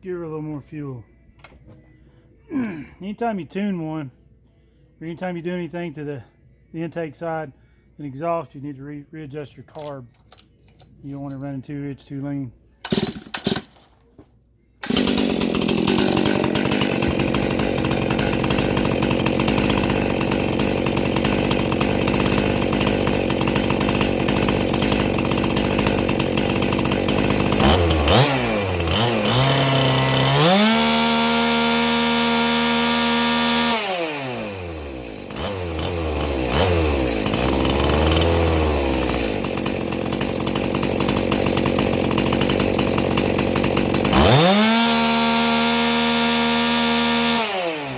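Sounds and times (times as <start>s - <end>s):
chainsaw engine revving: 12.8s - 13.7s, 14.8s - 47.9s.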